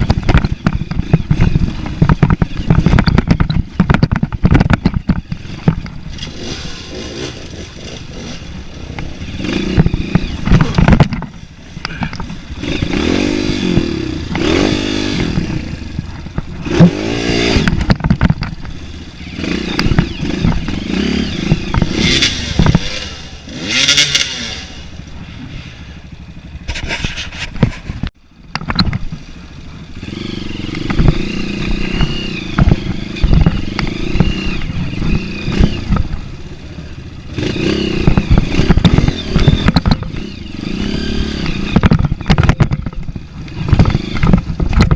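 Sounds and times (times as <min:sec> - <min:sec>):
dirt bike engine revving: 0:00.0 - 0:28.1, 0:29.0 - 0:44.9.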